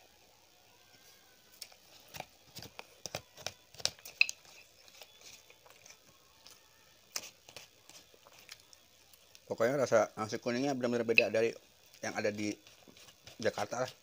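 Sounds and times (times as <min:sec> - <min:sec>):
man chewing rice: 0:01.6 - 0:09.5.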